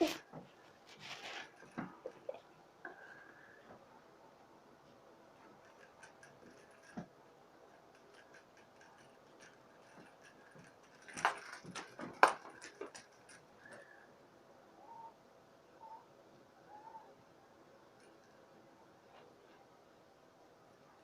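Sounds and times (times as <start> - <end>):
rustling: 0.0 - 3.9, 4.9 - 14.0.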